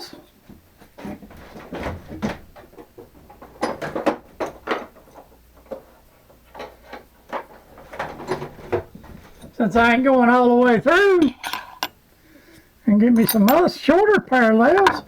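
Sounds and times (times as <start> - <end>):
light metal clinks: 13.2 - 13.7.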